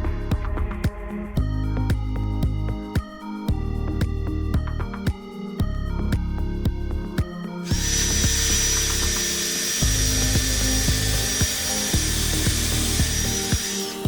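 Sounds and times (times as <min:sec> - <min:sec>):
background music with beat: 0:00.0 - 0:14.0
power tool whining: 0:07.6 - 0:14.0.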